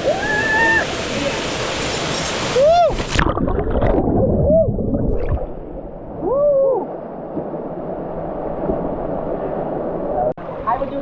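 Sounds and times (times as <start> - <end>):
rising and falling whoops: 0.0 - 0.9, 2.6 - 3.1, 6.2 - 6.9
muffled water gurgling and sloshing: 1.0 - 10.9.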